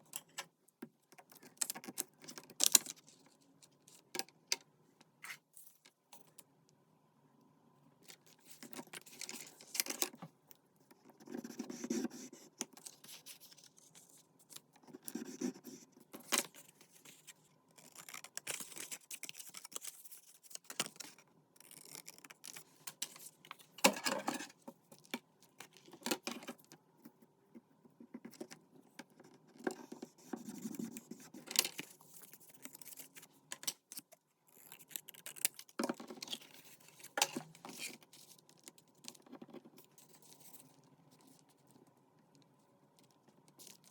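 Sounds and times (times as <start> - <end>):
paper and card handled and cut: 11.2 - 23.7, 29.6 - 41.4
paper rustling and scraping: 34.6 - 41.8.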